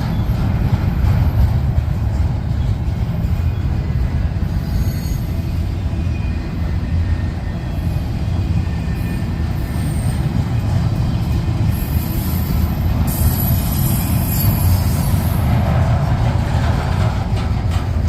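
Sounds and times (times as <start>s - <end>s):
train wheels rumbling on rail: 0.0s - 18.0s
faint wheel squeals: 2.6s - 10.3s.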